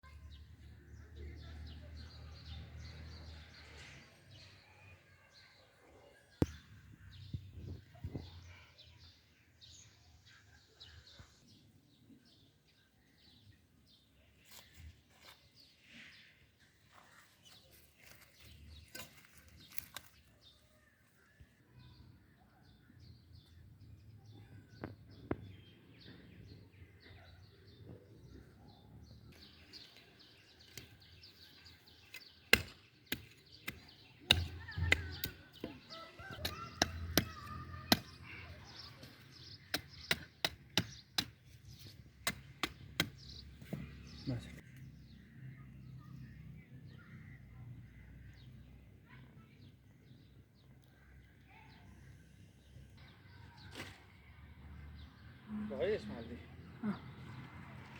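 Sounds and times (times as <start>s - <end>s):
faint outdoor background: 0.0s - 57.9s
sharp clicks and chopping knocks: 32.1s - 38.2s, 39.7s - 44.0s.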